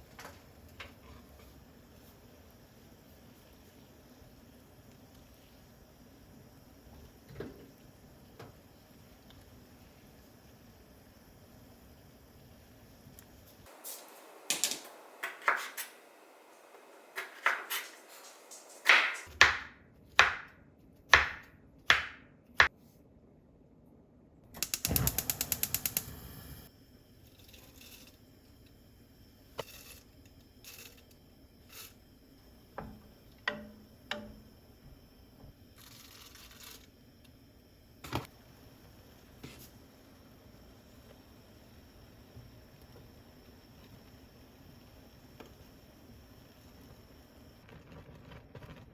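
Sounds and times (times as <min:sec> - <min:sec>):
rapid ratchet-like clicks: 0:24.6 - 0:26.1
sharp clicks and knocks: 0:24.6 - 0:26.1.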